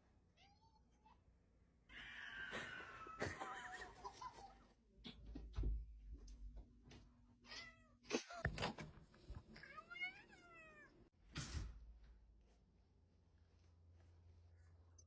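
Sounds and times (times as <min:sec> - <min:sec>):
cat meowing: 0:09.6 - 0:10.9.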